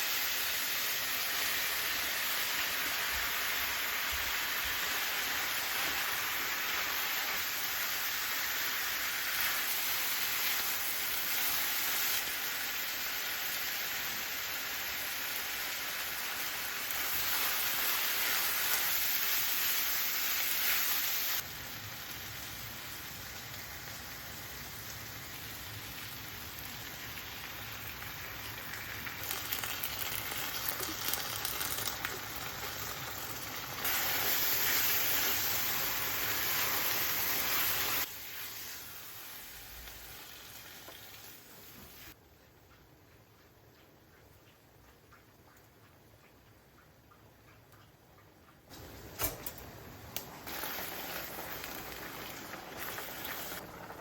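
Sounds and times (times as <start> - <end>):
food sizzling in a frying pan: 0.0 - 42.2, 48.7 - 54.0.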